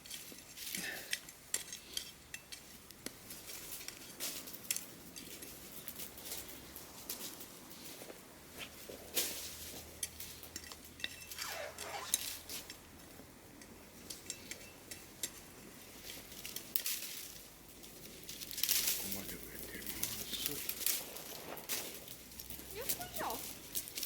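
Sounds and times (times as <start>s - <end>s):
hand tool scraping soil: 11.2s - 12.8s.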